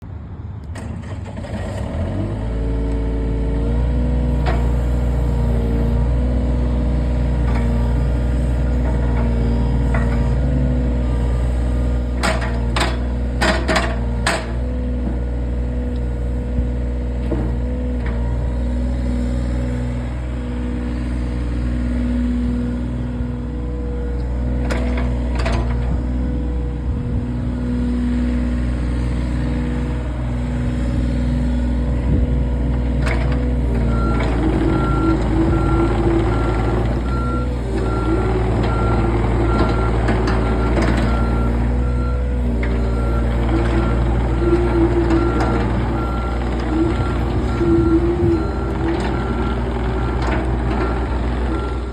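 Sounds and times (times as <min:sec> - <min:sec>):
excavator diesel engine running: 0:00.1 - 0:51.9.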